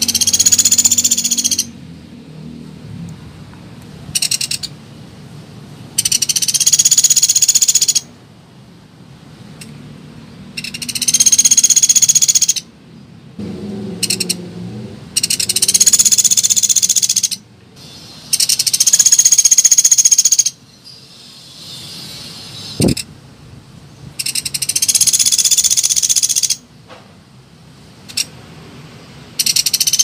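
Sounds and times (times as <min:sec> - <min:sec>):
woodpecker rattling trills: 0:00.0 - 0:01.8, 0:04.1 - 0:04.7, 0:06.0 - 0:08.1, 0:10.6 - 0:12.7, 0:14.0 - 0:14.4, 0:15.2 - 0:17.4, 0:18.3 - 0:20.6, 0:24.2 - 0:26.6, 0:29.4 - 0:30.0.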